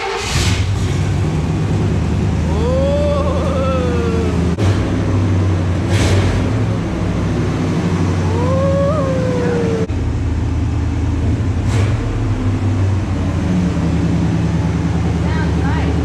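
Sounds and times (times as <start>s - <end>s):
truck engine rumbling: 0.0s - 16.0s
rising and falling call: 8.2s - 9.9s.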